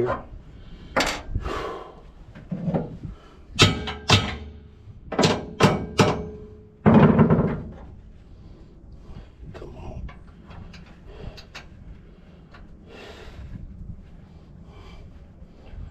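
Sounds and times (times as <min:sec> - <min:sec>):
steel hitch parts clanking: 0:03.6 - 0:08.0.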